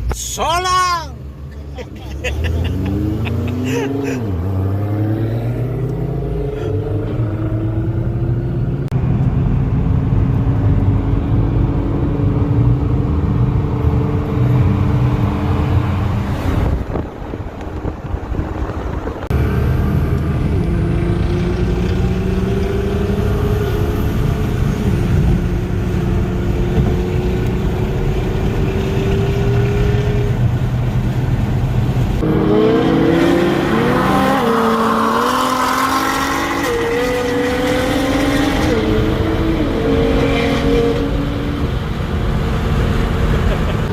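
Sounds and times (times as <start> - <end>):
car engines droning: 0.0 - 43.9
engine revving: 2.2 - 9.0, 19.3 - 30.4, 32.2 - 43.9.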